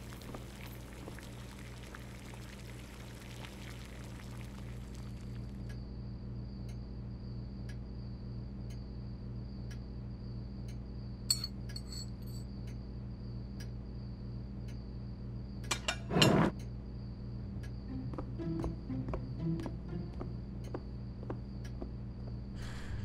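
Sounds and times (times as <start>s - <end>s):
low hum: 0.0s - 23.0s
spoon clinking on china plate: 11.3s - 12.4s
scraping noise: 15.9s - 16.6s.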